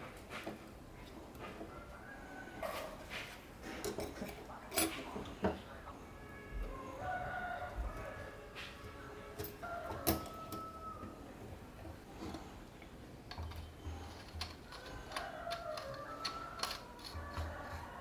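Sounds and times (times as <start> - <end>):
metal parts clicking and tapping: 9.4 - 10.7, 13.2 - 18.0.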